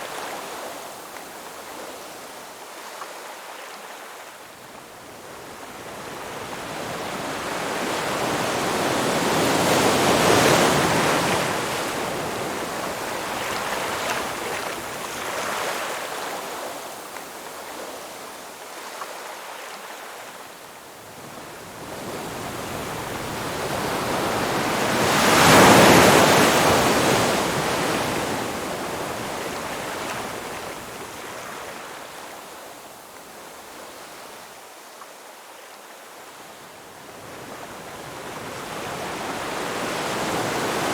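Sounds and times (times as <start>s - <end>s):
ocean waves breaking: 22.3s - 32.0s.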